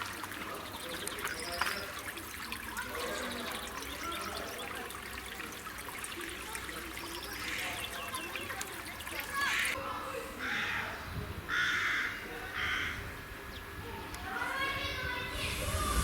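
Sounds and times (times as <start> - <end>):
water trickling: 0.0 - 9.8
small birds chirping: 0.3 - 5.0, 5.9 - 9.8.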